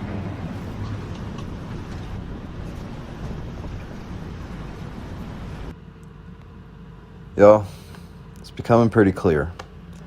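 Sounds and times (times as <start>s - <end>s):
strong wind rushing: 0.0s - 5.7s
wind buffeting microphone: 0.0s - 5.7s.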